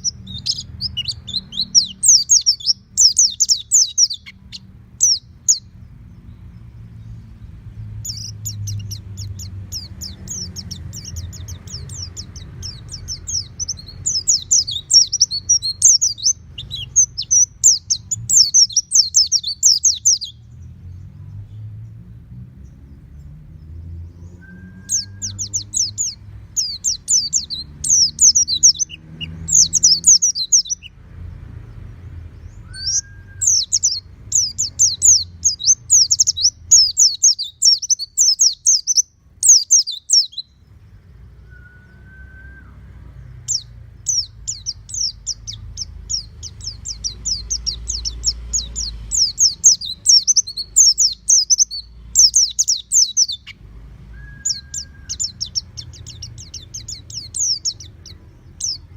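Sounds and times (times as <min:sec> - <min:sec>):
bird singing rapid chirps: 0:00.0 - 0:58.9
short low whistle: 0:41.5 - 0:42.8, 0:54.1 - 0:55.1.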